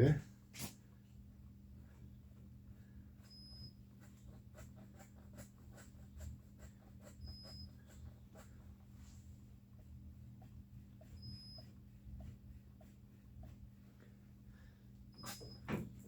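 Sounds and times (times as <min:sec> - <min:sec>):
brief high squeaks: 0:15.2 - 0:15.8.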